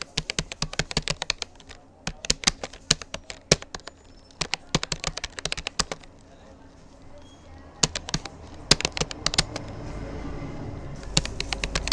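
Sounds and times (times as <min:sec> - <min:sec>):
keyboard typing clicks: 0:00.0 - 0:10.0, 0:11.0 - 0:11.9.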